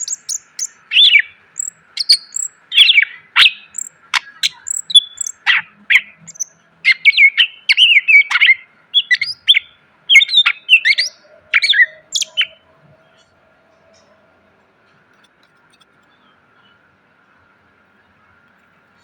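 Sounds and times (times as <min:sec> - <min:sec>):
bird singing whistles and chirps: 0:00.0 - 0:12.7.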